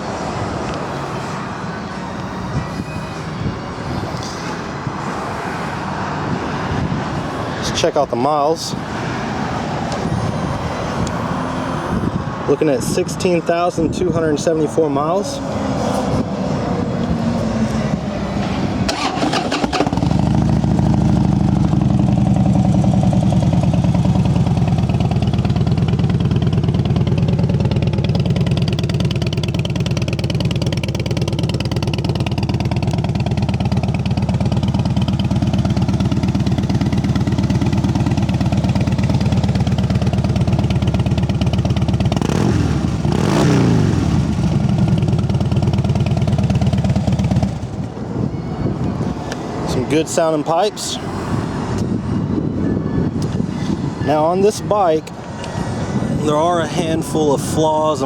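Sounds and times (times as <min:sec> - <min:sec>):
motorcycle engine starting: 0:17.4 - 0:48.0
motorcycle engine idling: 0:18.9 - 0:48.5.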